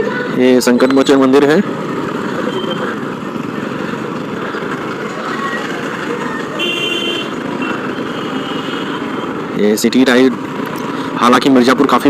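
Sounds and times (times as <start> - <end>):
motorcycle engine and road noise: 0.0 - 12.0
vehicle horn: 6.6 - 9.1.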